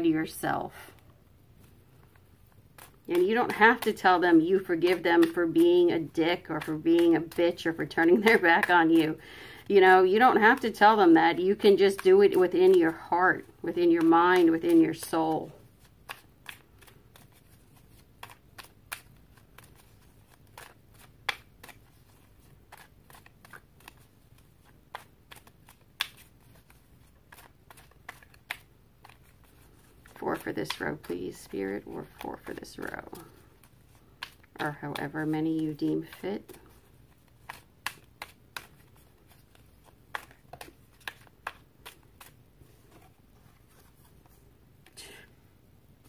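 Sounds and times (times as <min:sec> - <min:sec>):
cards being shuffled: 0:00.9 - 0:45.4.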